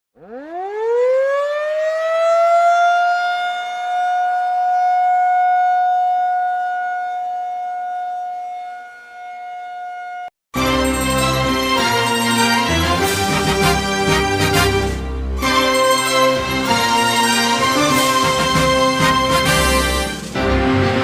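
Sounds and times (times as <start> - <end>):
warning siren wailing: 0.2 - 10.3, 15.4 - 20.1.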